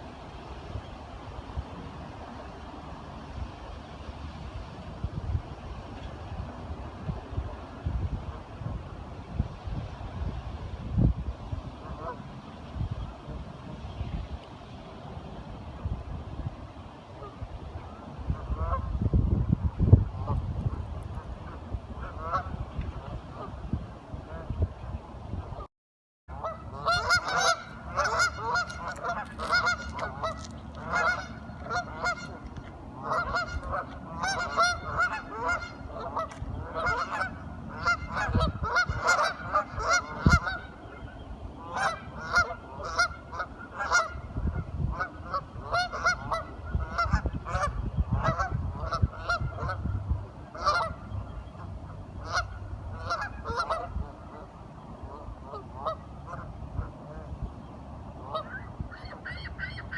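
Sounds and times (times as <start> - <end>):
waterfowl calling: 21.5 - 22.5, 26.3 - 57.3, 58.2 - 59.9.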